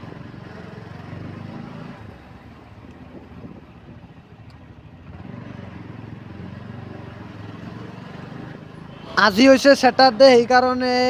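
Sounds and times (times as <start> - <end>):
wind noise on microphone: 3.1 - 4.1.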